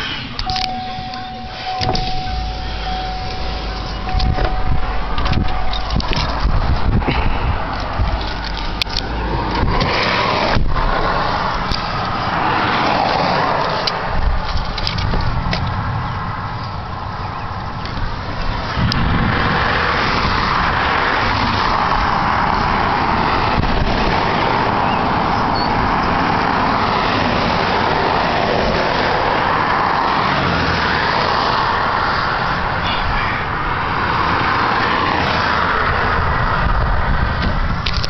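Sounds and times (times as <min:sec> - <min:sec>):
low rumble: 0:00.4 - 0:11.7
rain and wind on a car: 0:01.6 - 0:38.0.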